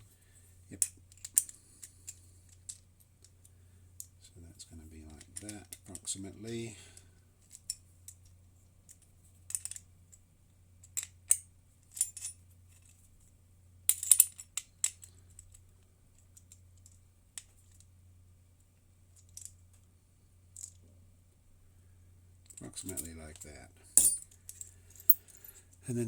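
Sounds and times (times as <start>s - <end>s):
low steady hum: 0.0s - 26.0s
small metal parts clinking: 0.8s - 3.4s, 5.1s - 9.9s, 10.8s - 13.1s, 13.9s - 15.6s, 19.1s - 19.8s, 20.5s - 20.8s, 22.4s - 25.8s.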